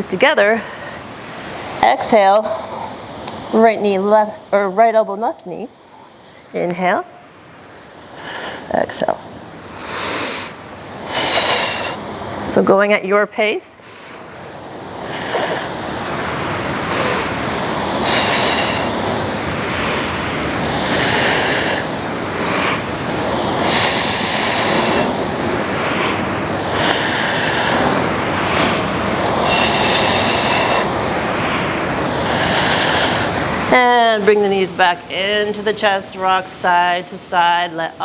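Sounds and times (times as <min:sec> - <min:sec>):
hissing breaths: 0:09.7 - 0:12.3, 0:13.8 - 0:33.7
wind on microphone: 0:14.8 - 0:34.3.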